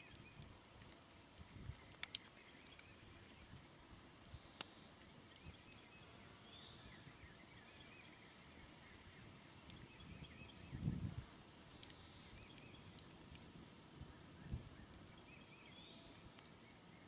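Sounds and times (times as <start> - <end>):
campfire crackling and popping: 0.0 - 17.0
faint birdsong: 0.0 - 17.0.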